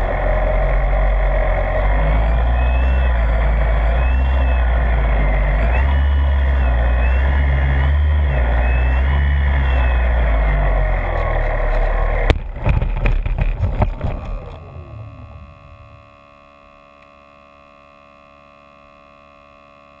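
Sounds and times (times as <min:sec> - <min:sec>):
faint electronic tone: 0:00.0 - 0:12.3, 0:14.0 - 0:20.0
electric motor and propeller: 0:00.0 - 0:20.0
model plane knocking on ground: 0:11.2 - 0:14.8.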